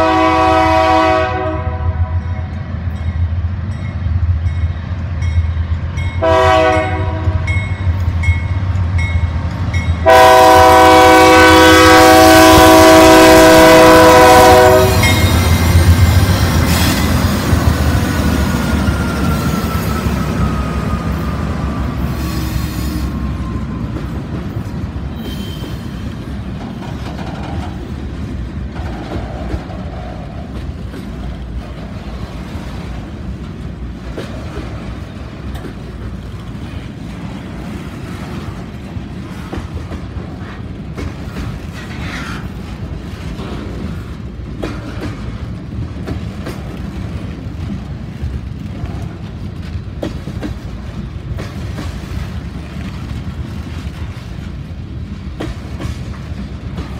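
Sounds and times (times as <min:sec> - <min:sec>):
diesel locomotive passing: 0:00.0 - 0:56.9
train wheels rumbling on rails: 0:00.0 - 0:56.9.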